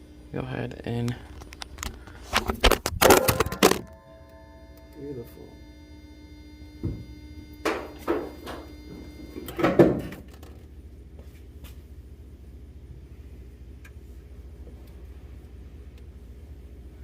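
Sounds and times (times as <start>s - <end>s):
low hum: 0.0s - 9.4s
faint steady tone: 3.3s - 9.6s.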